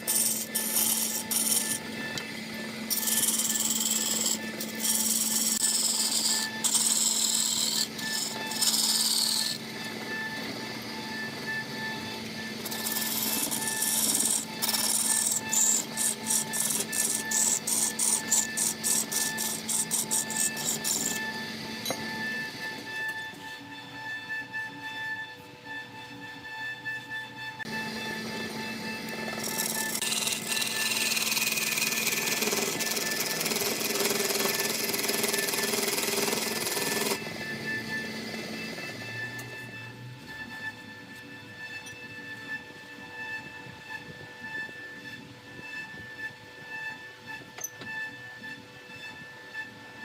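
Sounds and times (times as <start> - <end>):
lathe gouge cutting wood: 0.0 - 22.6, 27.6 - 39.1.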